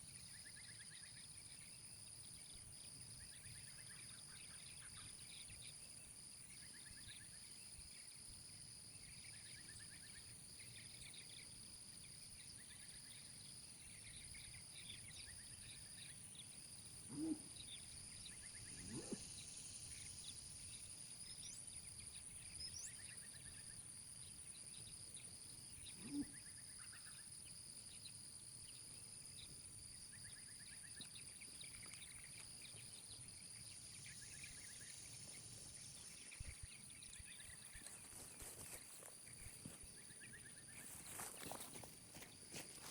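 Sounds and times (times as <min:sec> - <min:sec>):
insects trilling: 0:00.1 - 0:42.9
short low animal calls: 0:17.0 - 0:17.6, 0:18.7 - 0:19.3, 0:26.0 - 0:26.4.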